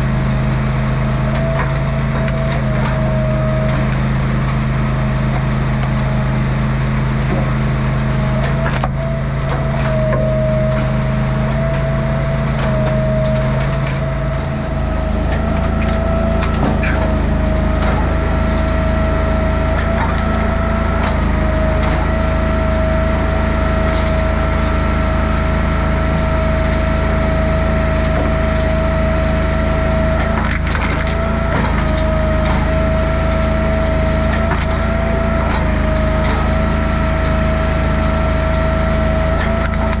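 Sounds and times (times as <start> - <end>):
log splitter engine running: 0.0 - 40.0
high whine: 5.0 - 34.2
wood cracking as it splits: 27.6 - 37.4.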